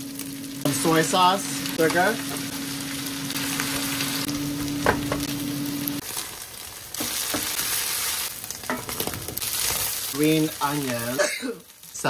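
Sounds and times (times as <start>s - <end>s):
low steady hum: 0.0s - 6.0s
rice sizzling in a skillet: 0.0s - 12.0s.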